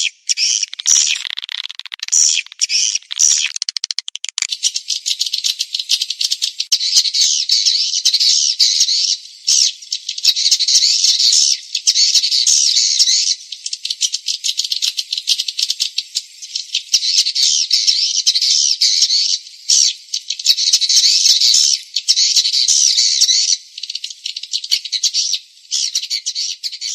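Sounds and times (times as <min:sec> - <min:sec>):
rapid clicking: 0:03.1 - 0:04.5.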